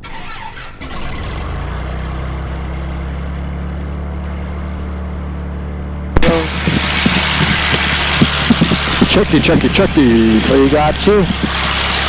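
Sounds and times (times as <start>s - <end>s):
aircraft piston engine idling: 6.2s - 12.0s.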